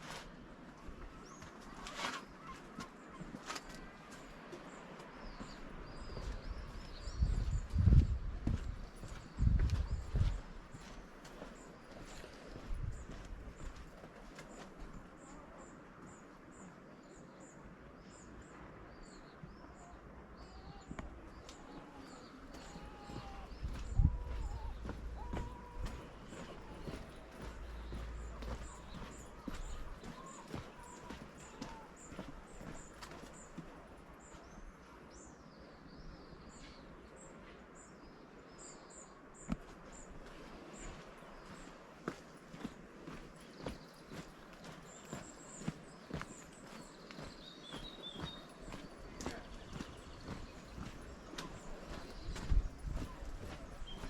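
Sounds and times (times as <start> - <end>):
small birds chirping: 0.8 - 54.0
bird high chirps: 20.5 - 33.1.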